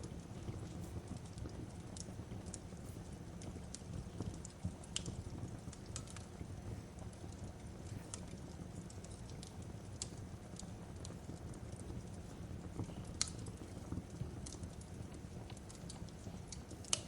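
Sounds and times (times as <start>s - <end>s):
fire popping and crackling: 0.0s - 17.0s
fireplace fire rumbling: 0.0s - 17.0s.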